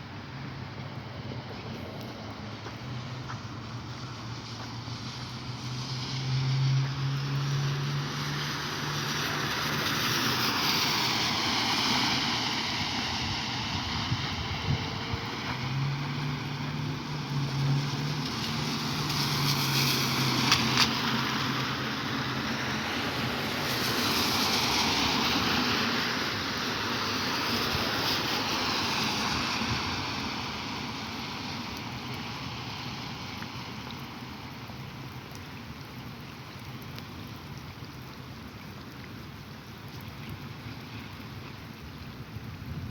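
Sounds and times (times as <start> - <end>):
tyres hissing on wet pavement: 0.0 - 42.9
rain falling: 0.3 - 42.9.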